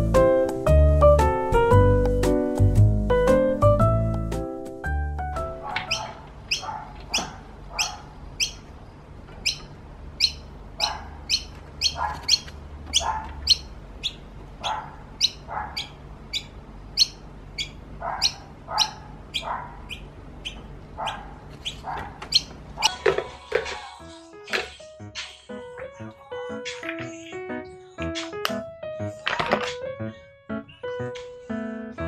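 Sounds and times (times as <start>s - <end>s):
bird chirping: 5.6s - 23.0s, 24.1s - 31.7s.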